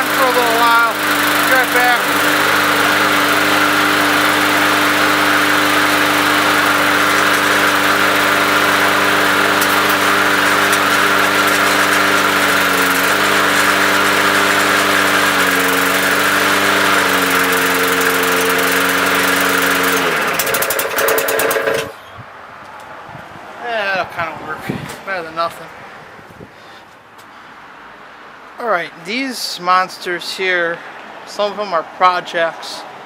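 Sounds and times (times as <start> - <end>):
lawn mower engine running: 0.0 - 22.0.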